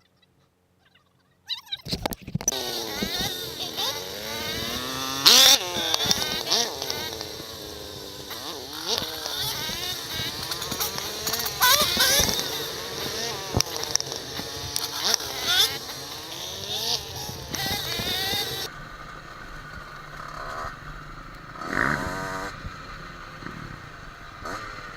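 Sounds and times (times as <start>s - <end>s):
dirt bike engine revving: 2.4s - 24.9s.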